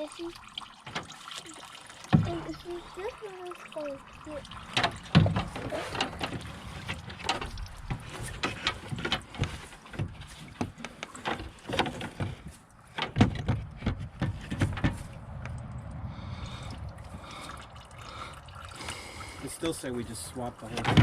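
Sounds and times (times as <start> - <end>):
tools and parts clunking: 4.8 - 15.1, 20.6 - 21.0.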